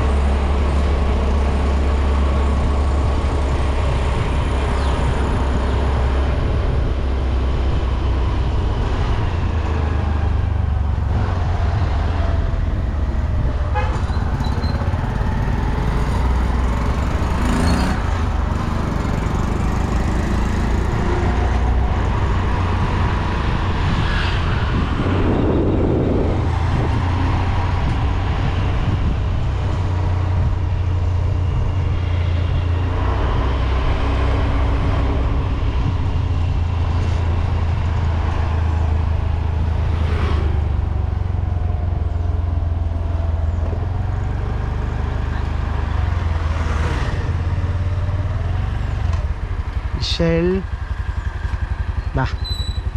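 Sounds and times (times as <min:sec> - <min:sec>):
low rumble of road traffic: 0:00.0 - 0:52.9
short horn toots: 0:13.7 - 0:14.2.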